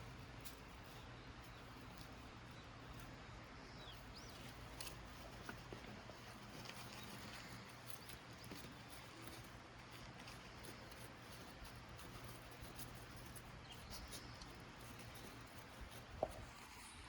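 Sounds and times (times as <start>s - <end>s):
faint outdoor ambience: 0.0s - 17.0s.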